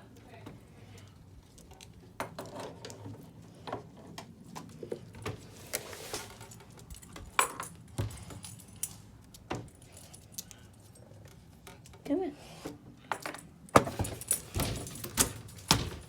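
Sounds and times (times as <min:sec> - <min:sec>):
dog collar tags jingling: 0:06.4 - 0:11.9
light clicks and knocks at pet door: 0:13.2 - 0:16.0.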